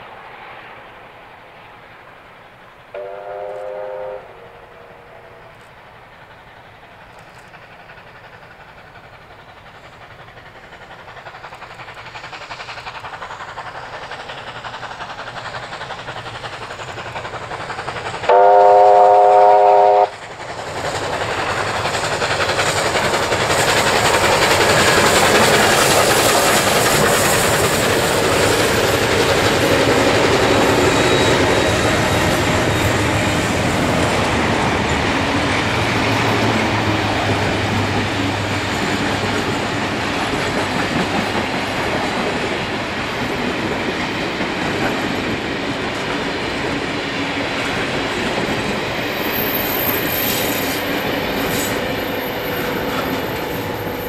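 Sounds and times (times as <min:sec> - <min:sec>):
train whistle blast: 0:02.9 - 0:05.4, 0:18.3 - 0:20.2
locomotives rumbling by: 0:03.7 - 0:54.0
wheels clattering on rails: 0:05.4 - 0:18.4, 0:20.0 - 0:54.0.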